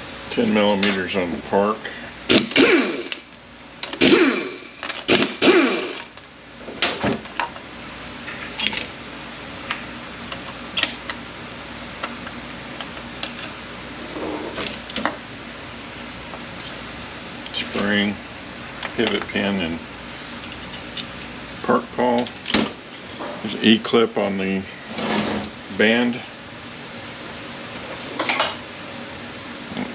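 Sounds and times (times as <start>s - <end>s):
power tool bursts: 2.3s - 3.3s, 3.9s - 6.1s.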